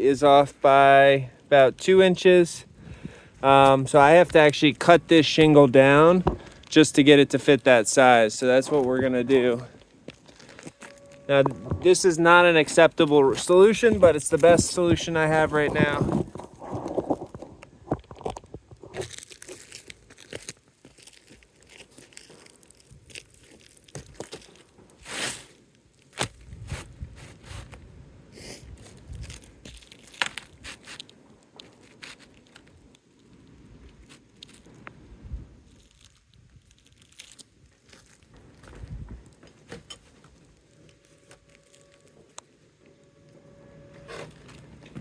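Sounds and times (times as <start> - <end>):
roof shingles scraping and crinkling: 0.2 - 27.8, 28.4 - 35.0, 35.6 - 45.0
long rasping noise: 7.9 - 17.0, 40.4 - 45.0.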